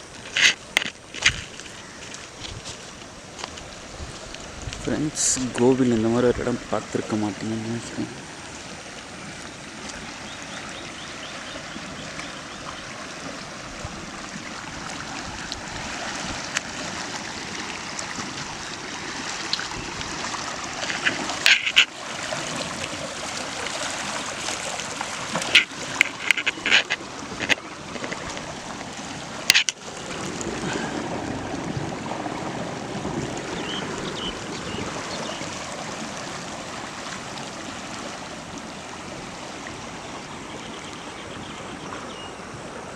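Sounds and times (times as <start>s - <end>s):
stream water rushing: 0.0s - 42.9s
sharp clicks or splashes: 15.4s - 32.0s.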